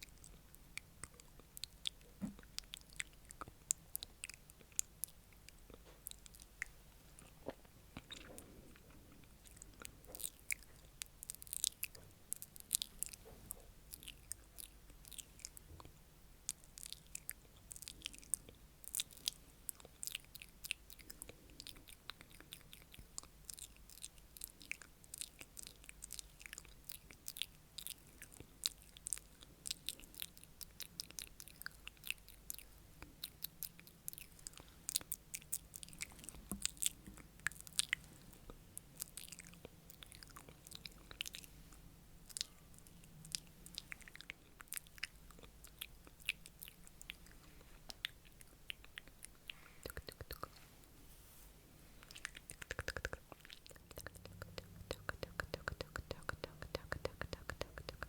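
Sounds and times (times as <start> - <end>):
wet mouth clicks and smacks: 16.5 - 41.5, 42.2 - 50.6, 52.0 - 58.0.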